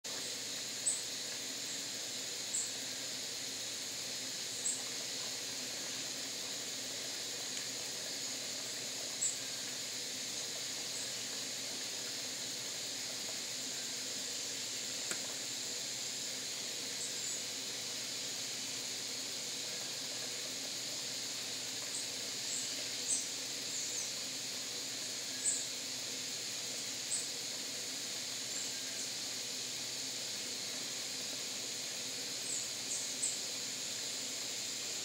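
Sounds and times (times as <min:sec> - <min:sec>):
steady high hiss: 0:00.0 - 0:35.0.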